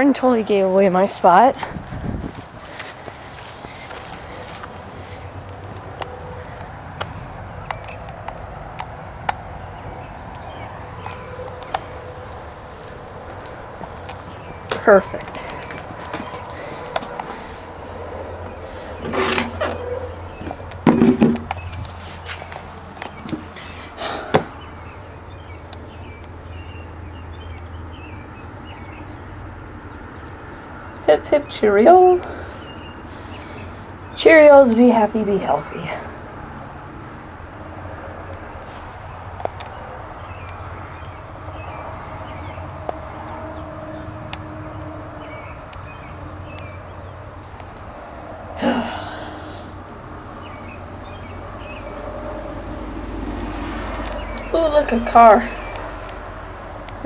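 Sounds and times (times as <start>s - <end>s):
sharp knocks and rustles: 18.4s - 24.6s
breathy vocal sound: 48.5s - 49.8s.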